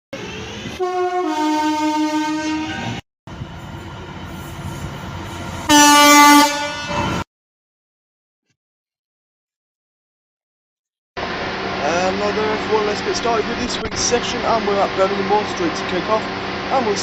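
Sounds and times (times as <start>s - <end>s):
train running: 0.1s - 7.2s, 11.2s - 17.0s
two-tone train horn: 0.2s - 3.0s, 5.6s - 7.2s.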